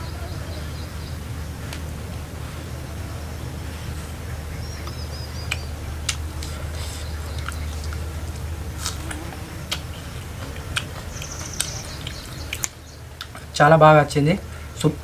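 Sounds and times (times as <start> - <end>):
low hum: 0.0 - 15.0
chewing and biting crunches: 5.5 - 13.5.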